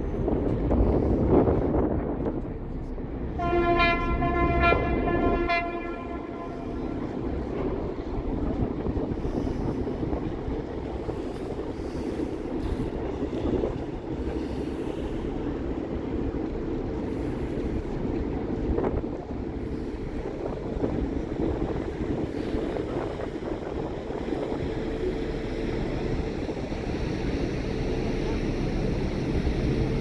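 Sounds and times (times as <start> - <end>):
train rumbling and rattling: 0.0 - 30.0
train horn: 3.3 - 8.3.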